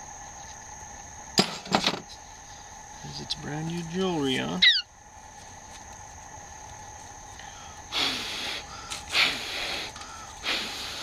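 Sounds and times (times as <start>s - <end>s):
short puffs of breath: 7.9s - 11.0s.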